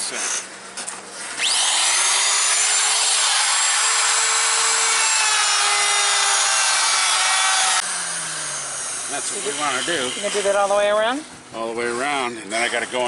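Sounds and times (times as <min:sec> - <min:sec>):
power tool cutting wood: 0:01.2 - 0:11.2.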